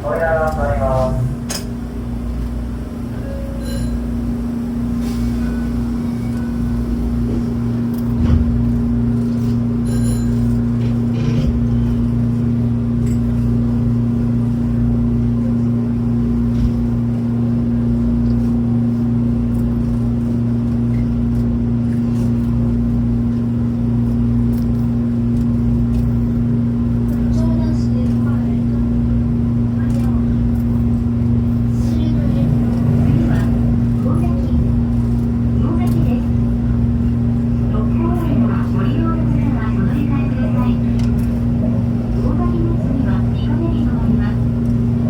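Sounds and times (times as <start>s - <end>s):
electric train hum and rumble: 0.0s - 45.0s.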